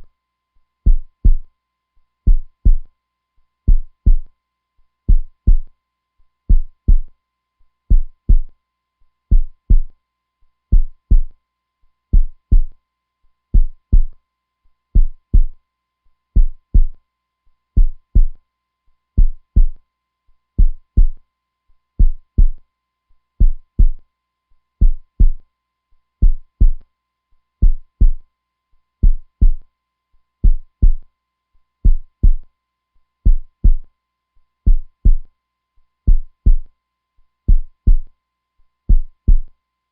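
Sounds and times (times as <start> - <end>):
heartbeat thumps: 0.9 - 1.5, 2.3 - 2.9, 3.7 - 4.3, 5.1 - 5.7, 6.5 - 7.1, 7.9 - 8.5, 9.3 - 9.9, 10.7 - 11.3, 12.2 - 12.7, 13.6 - 14.1, 15.0 - 15.6, 16.4 - 17.0, 17.8 - 18.4, 19.2 - 19.8, 20.6 - 21.2, 22.0 - 22.6, 23.4 - 24.0, 24.8 - 25.4, 26.2 - 26.8, 27.6 - 28.2, 29.0 - 29.6, 30.4 - 31.0, 31.8 - 32.4, 33.3 - 33.8, 34.7 - 35.3, 36.1 - 36.7, 37.5 - 38.1, 38.9 - 39.5.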